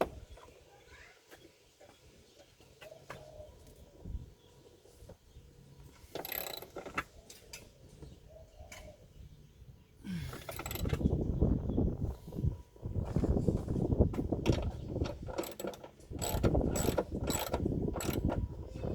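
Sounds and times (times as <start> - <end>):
ratchet rasping: 6.1 - 6.8, 10.4 - 11.1, 14.5 - 18.4
clicks and knocks on metal parts: 6.1 - 7.7, 14.4 - 18.4.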